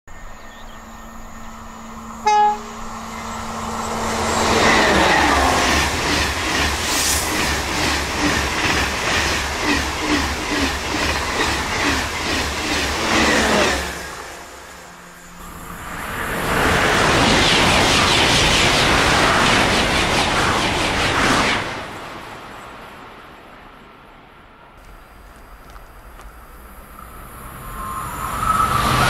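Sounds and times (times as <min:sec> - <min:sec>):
train rushing past: 0:00.1 - 0:29.0
train horn blast: 0:02.2 - 0:03.1
train wheels clacking: 0:04.4 - 0:13.9.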